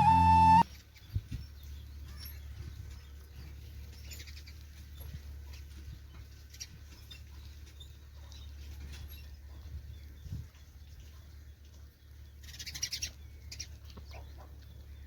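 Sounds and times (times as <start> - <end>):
low steady rumble: 0.0 - 0.6.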